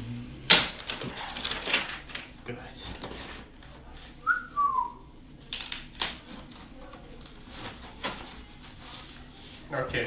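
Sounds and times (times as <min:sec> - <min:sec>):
packaging crinkling and knocking: 0:00.5 - 0:03.7.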